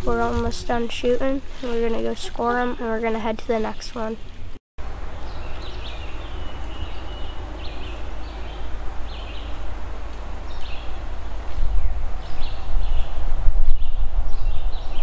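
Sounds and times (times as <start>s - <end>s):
wind rumble on microphone: 4.2s - 15.0s.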